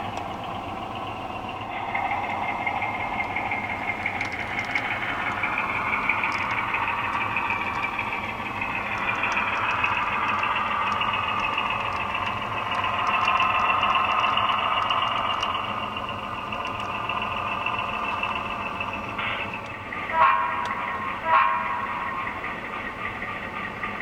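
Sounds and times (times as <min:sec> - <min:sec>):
model locomotive whine: 0:00.0 - 0:24.0
faint clicks: 0:04.0 - 0:15.7, 0:16.5 - 0:17.0.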